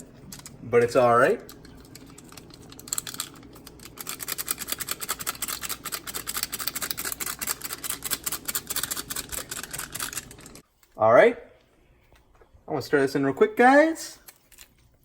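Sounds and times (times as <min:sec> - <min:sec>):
seasoning packet rustling: 0:01.5 - 0:10.7.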